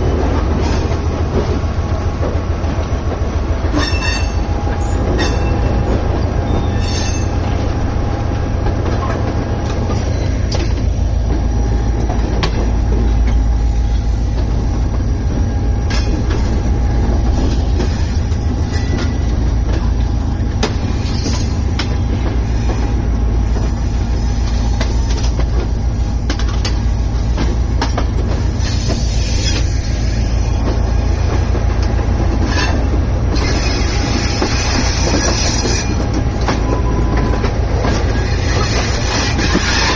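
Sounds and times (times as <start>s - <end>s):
train rumbling on track: 0.0s - 39.9s
wheels clicking over rail joints: 24.4s - 39.9s.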